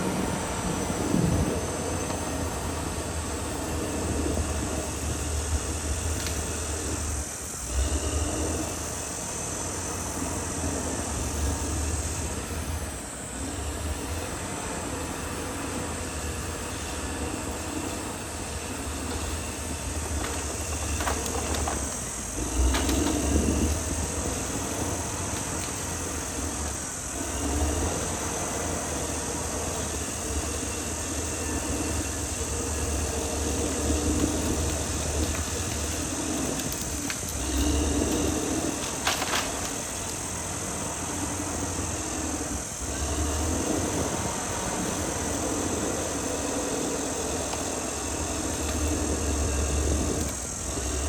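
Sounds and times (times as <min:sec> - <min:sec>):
bulldozer diesel engine rumbling: 0:00.0 - 0:51.0.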